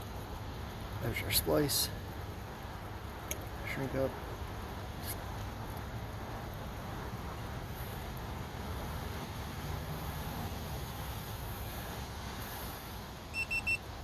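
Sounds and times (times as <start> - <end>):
fusion splicer beeps: 13.3 - 13.9.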